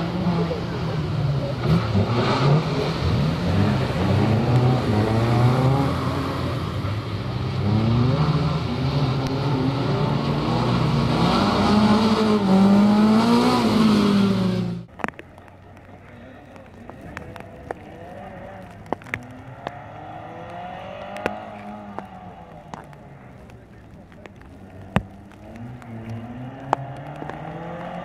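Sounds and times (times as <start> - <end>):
rally car engine revving: 0.0 - 15.2, 15.8 - 28.0.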